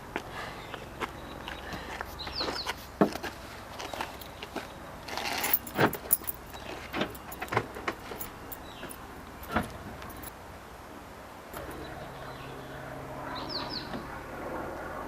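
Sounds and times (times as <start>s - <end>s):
keys jangling: 5.2s - 10.3s.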